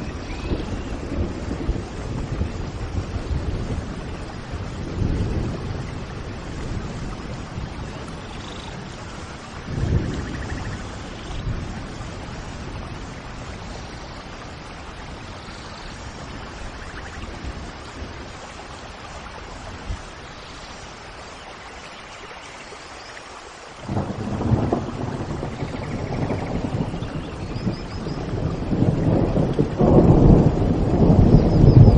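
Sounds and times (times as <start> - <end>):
faint bird chirps: 0.0 - 1.0
thunder rumbling: 0.0 - 20.2, 23.8 - 31.9
steady rain: 0.0 - 31.9.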